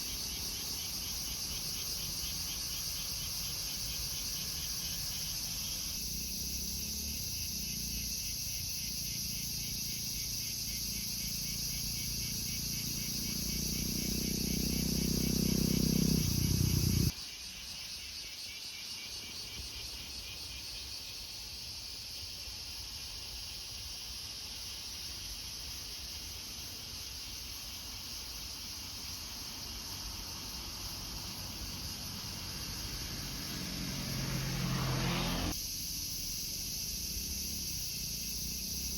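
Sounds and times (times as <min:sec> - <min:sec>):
insects chirring: 0:00.0 - 0:38.9
vehicle approaching: 0:06.2 - 0:08.0, 0:11.3 - 0:17.1, 0:29.6 - 0:35.6.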